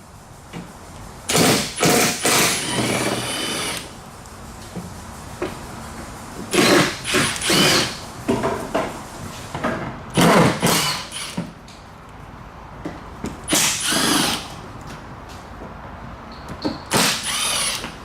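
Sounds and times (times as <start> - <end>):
power tool whine: 6.5 - 8.0, 16.9 - 17.9.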